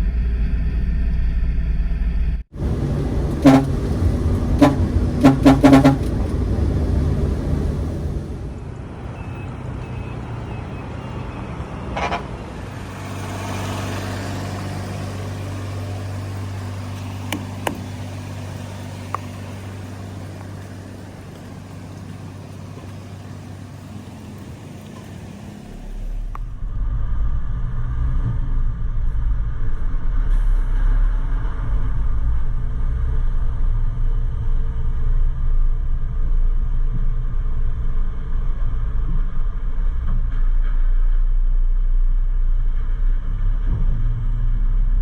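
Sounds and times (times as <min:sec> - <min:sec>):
truck engine humming: 0:02.5 - 0:09.8, 0:11.8 - 0:26.6.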